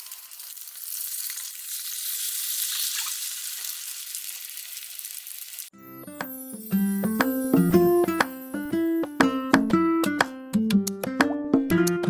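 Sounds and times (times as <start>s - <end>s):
egg mixture sizzling in hot oil: 0.0s - 5.8s.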